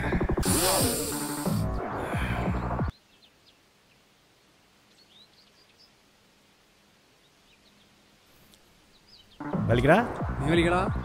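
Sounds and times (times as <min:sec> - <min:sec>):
small bird chirps: 0:02.6 - 0:06.0, 0:07.1 - 0:09.4.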